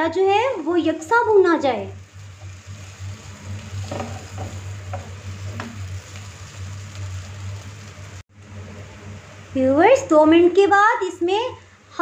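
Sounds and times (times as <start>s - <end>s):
vegetables sizzling in oil: 0.0s - 8.3s
low steady hum: 0.0s - 12.0s
spatula scraping a pot: 3.3s - 5.7s.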